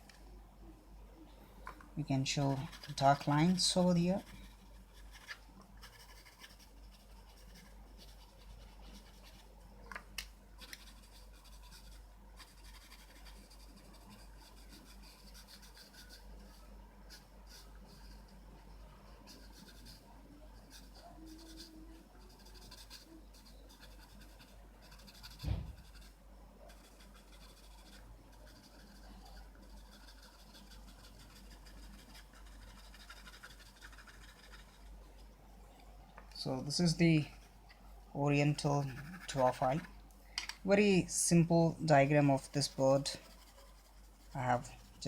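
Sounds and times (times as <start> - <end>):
pencil scratching on paper: 2.4 - 9.5, 10.6 - 18.4, 19.1 - 35.0, 38.6 - 39.9, 42.1 - 45.0
thump: 25.4 - 25.9.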